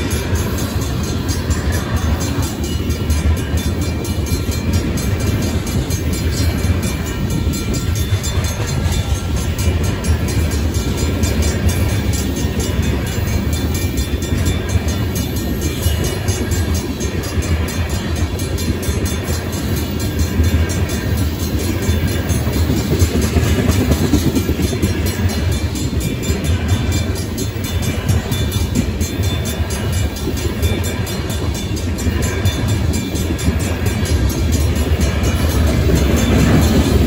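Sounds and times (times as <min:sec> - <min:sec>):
freight train wheels rumbling: 0:00.0 - 0:37.0
railroad crossing bell ringing: 0:00.0 - 0:37.0.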